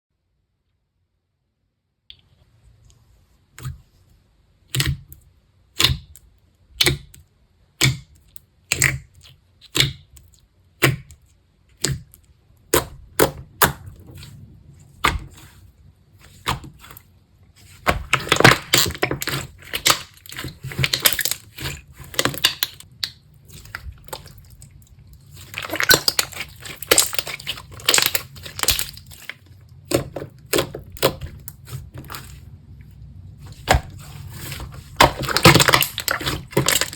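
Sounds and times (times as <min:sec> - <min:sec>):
slime popping and crackling: 0:17.7 - 0:32.3, 0:33.6 - 0:36.9.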